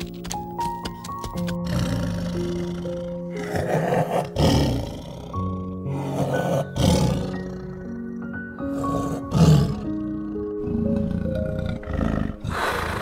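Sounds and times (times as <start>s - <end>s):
soft background music: 0.0s - 13.0s
leopard rasping calls: 8.7s - 13.0s.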